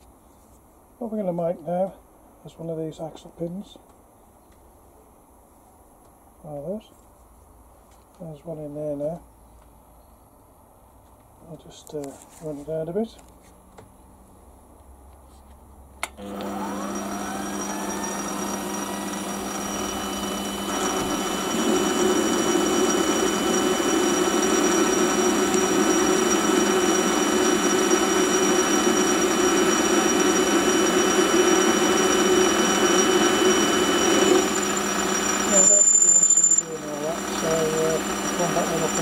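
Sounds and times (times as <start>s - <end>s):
power tool motor running: 16.2s - 39.0s.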